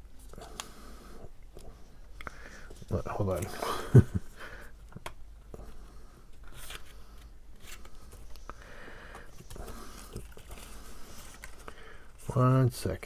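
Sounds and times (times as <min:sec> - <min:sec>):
cardstock rustling: 0:06.4 - 0:12.6.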